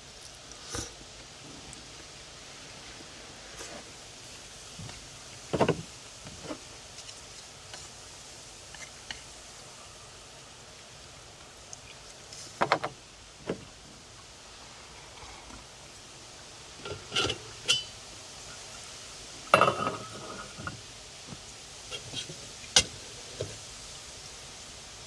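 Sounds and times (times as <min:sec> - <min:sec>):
metal cookware clinking: 0:16.8 - 0:17.9, 0:19.6 - 0:20.5.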